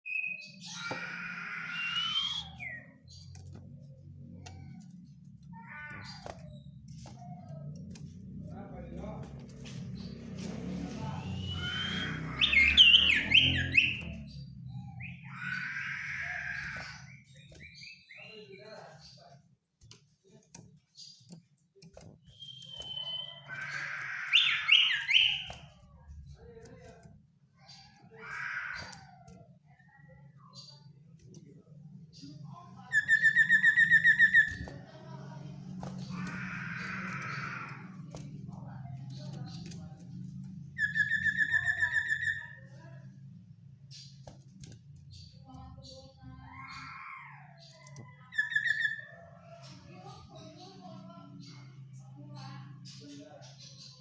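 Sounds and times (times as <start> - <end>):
bird whistling: 0.1 - 3.0, 22.3 - 25.5
bird harsh grating call: 0.3 - 2.9, 15.1 - 17.9, 22.3 - 25.6, 27.7 - 29.3, 35.9 - 38.2.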